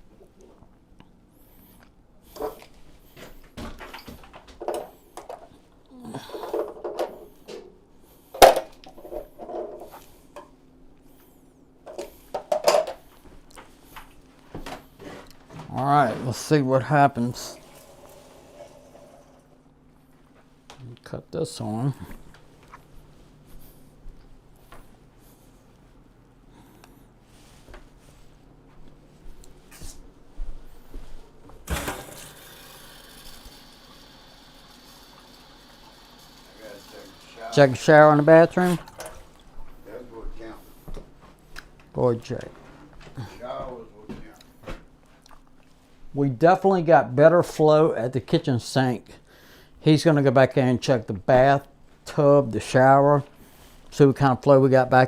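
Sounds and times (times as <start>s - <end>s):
water running from faucet: 17.5s - 19.6s, 32.0s - 37.9s.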